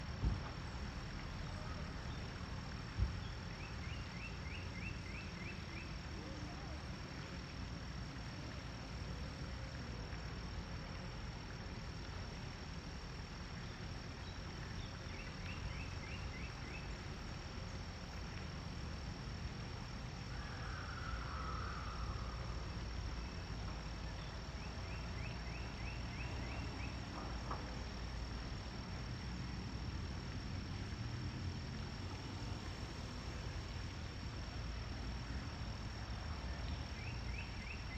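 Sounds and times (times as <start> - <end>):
high-pitched insect trill: 11.8 - 37.9.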